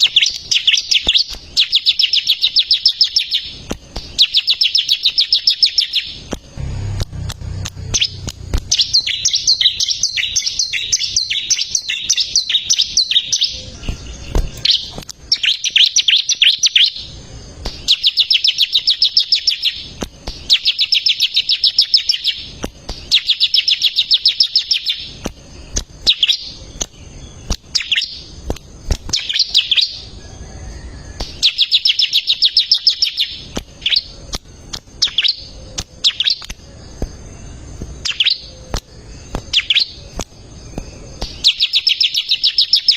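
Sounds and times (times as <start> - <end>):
sharp bird call notes: 0.0 - 17.0
bird singing high trills: 0.0 - 28.4, 29.1 - 42.9.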